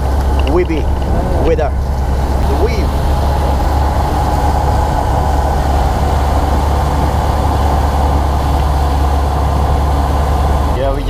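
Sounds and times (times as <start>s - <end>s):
motorboat engine droning: 0.0s - 11.0s.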